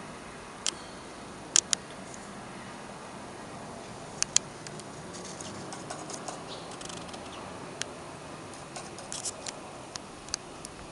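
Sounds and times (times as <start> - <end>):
steady background hiss: 0.0 - 10.9
sharp clicks: 1.5 - 2.2, 4.2 - 10.8.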